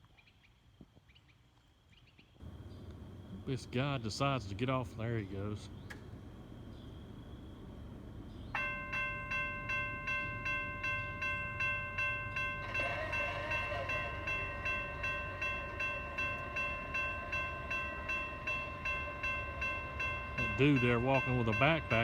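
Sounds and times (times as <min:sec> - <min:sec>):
railroad crossing bell ringing: 0:07.6 - 0:22.0.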